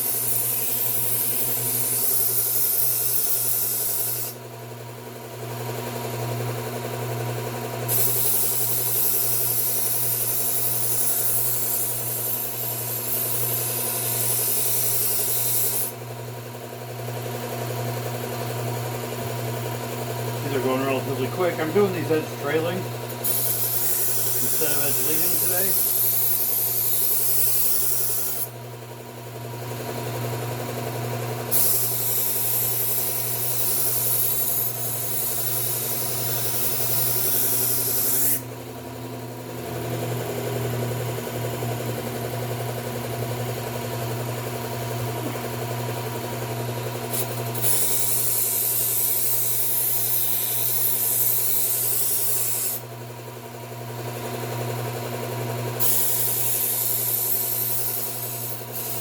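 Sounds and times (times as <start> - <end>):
knife grinding hiss: 0.0 - 4.4, 7.9 - 16.0, 23.1 - 28.5, 31.5 - 38.4, 47.1 - 52.8, 55.8 - 59.0
belt sharpener motor hum: 0.0 - 59.0.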